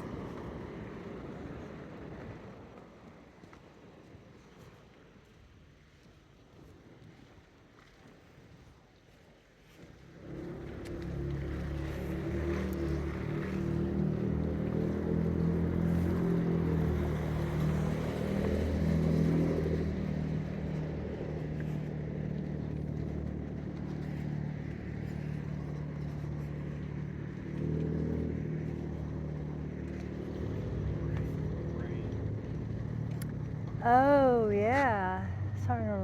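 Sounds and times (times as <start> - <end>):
car engine running: 10.1 - 36.0.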